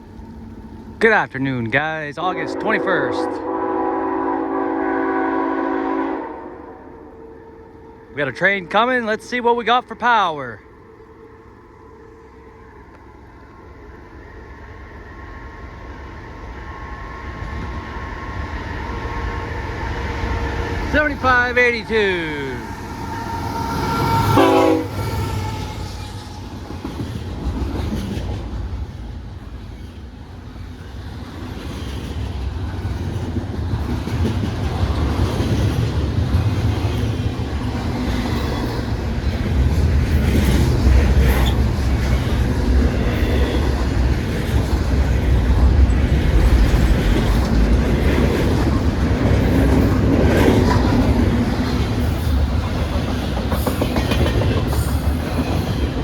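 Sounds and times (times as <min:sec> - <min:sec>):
train cars rumbling: 0:00.0 - 0:56.0
train horn blast: 0:02.4 - 0:08.2, 0:21.8 - 0:26.4
clickety-clack of wheels: 0:25.9 - 0:30.1, 0:30.7 - 0:56.0.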